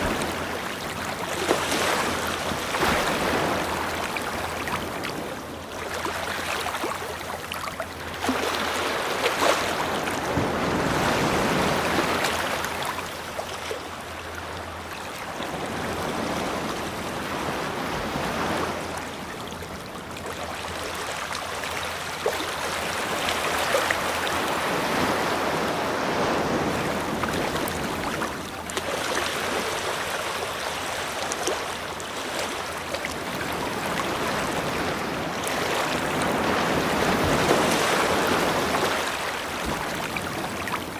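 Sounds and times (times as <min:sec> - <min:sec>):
ocean waves breaking on beach: 0:00.0 - 0:40.9.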